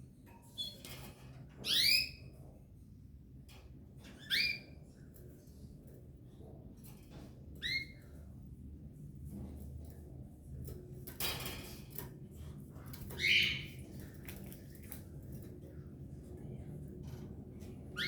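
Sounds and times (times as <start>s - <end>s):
canary squawk: 13.2s - 13.7s.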